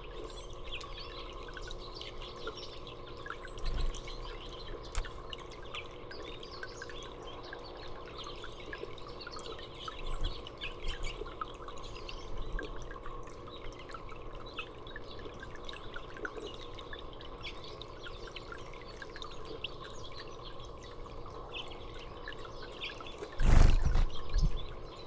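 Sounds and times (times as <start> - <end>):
water dripping and trickling: 0.0 - 24.2
small birds chirping: 23.4 - 24.3.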